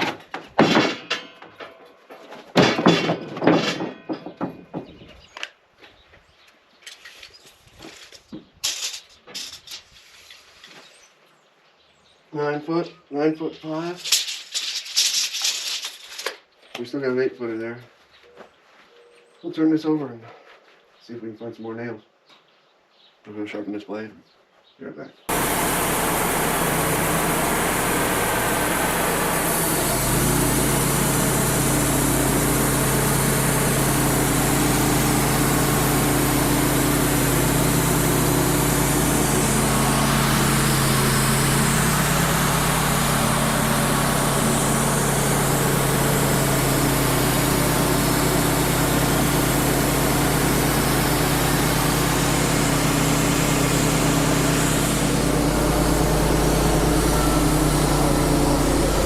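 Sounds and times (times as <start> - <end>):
sawmill engine droning: 25.3 - 59.0.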